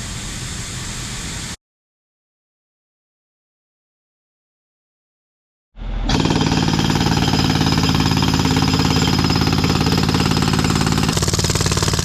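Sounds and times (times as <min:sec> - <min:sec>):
jackhammer breaking asphalt: 0:06.1 - 0:12.0.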